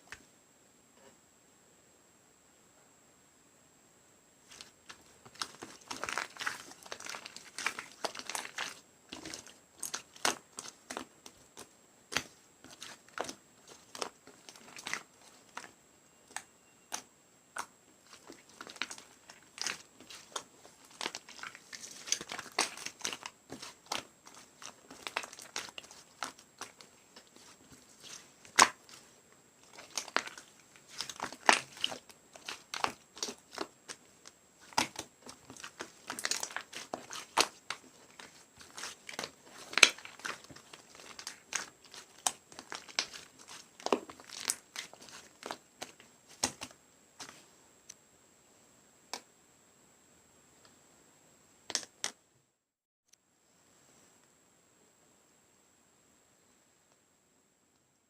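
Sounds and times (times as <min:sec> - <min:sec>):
slime crackling and popping: 0:04.5 - 0:15.7, 0:16.3 - 0:34.0, 0:34.6 - 0:47.3.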